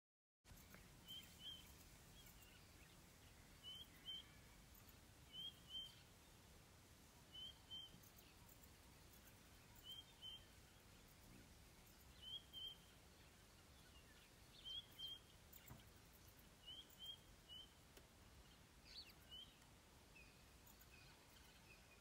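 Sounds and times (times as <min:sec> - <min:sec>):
faint background hiss: 0:00.5 - 0:22.0
bird calling: 0:00.6 - 0:06.2.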